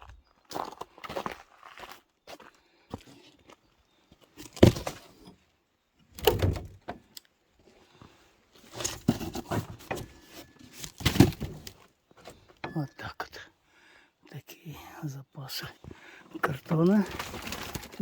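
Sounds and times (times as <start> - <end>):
cardboard boxes thudding and rustling: 4.4 - 5.2, 8.7 - 11.8.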